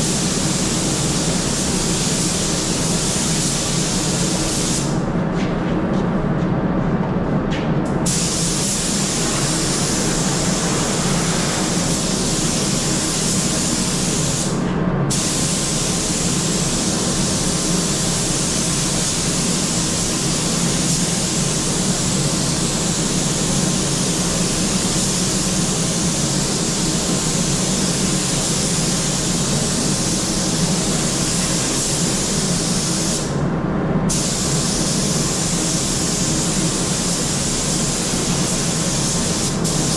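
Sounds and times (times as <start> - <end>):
spray gun hissing: 8.1 - 33.3, 34.1 - 39.9.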